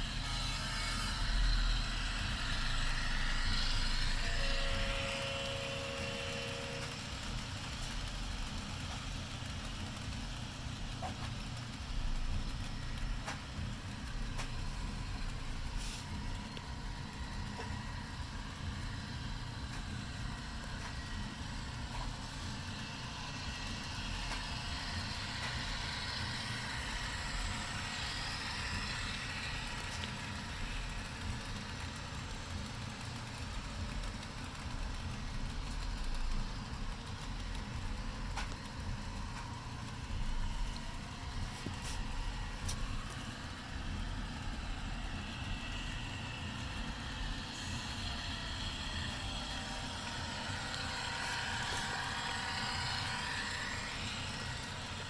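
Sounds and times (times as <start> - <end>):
hiss: 15.8 - 16.2.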